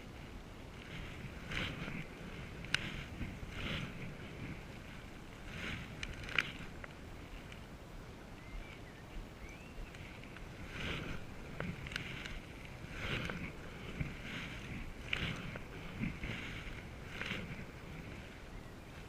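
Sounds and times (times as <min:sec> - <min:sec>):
canoe paddle splashing in water: 0:10.5 - 0:18.4.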